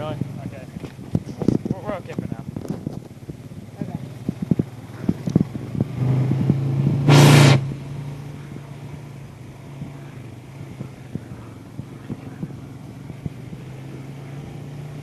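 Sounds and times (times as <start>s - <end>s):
atv engine revving: 0.0s - 15.0s
loud rushing burst: 6.1s - 7.8s.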